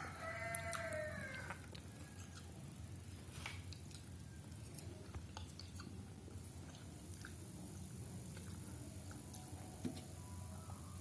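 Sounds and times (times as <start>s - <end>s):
person chewing noodles: 0.0s - 9.6s
steady low hum: 0.0s - 11.0s.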